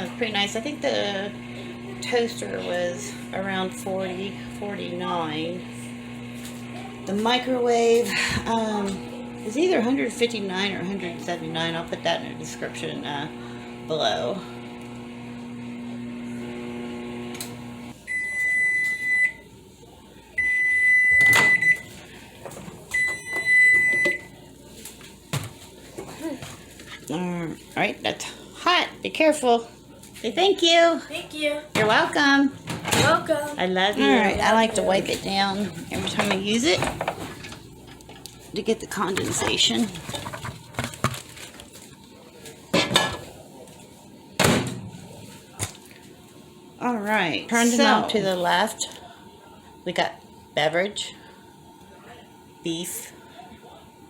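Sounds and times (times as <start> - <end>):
microwave humming: 0.0 - 30.6, 31.2 - 54.0
microwave beeps: 18.0 - 19.5, 20.4 - 22.0, 22.9 - 24.3.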